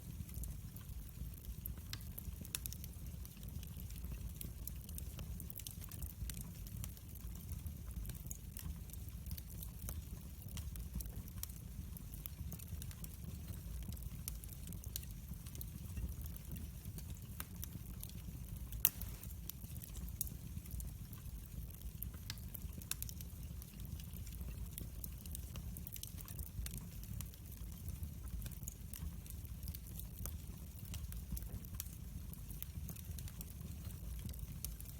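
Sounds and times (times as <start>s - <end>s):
fire crackling and popping: 0.0s - 34.9s
fire flames rumbling: 0.0s - 34.9s.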